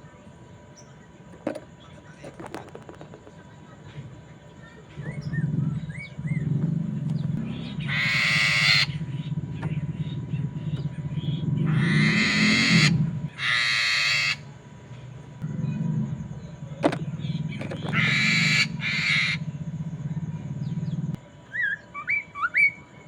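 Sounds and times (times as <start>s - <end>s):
harsh grating bird calls: 4.6s - 22.9s
low hum: 5.0s - 13.4s, 14.4s - 21.2s.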